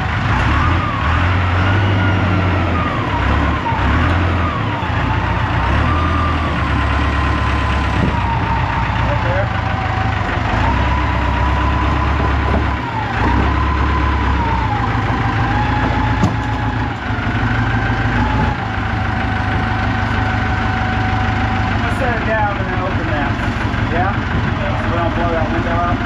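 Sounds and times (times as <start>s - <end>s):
machine engine running: 0.7s - 26.0s
whining tone changing pitch: 1.6s - 17.0s.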